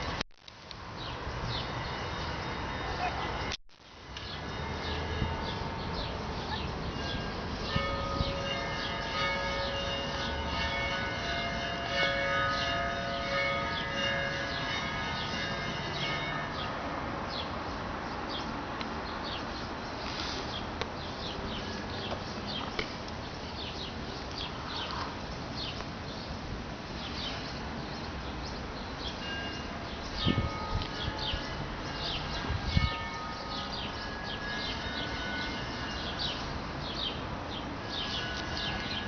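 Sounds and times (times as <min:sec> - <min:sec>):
bells ringing: 0:01.3 - 0:17.6, 0:29.0 - 0:39.0
birds chirping: 0:04.2 - 0:10.4, 0:27.0 - 0:39.0.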